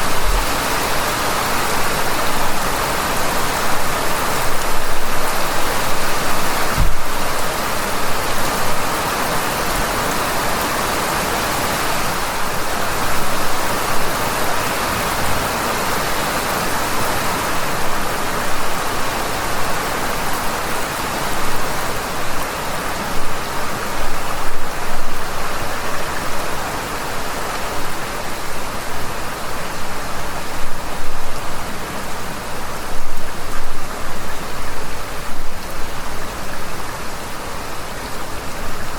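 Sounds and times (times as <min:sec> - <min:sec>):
heavy rain falling: 0:00.0 - 0:38.9
short low thump: 0:06.7 - 0:07.2.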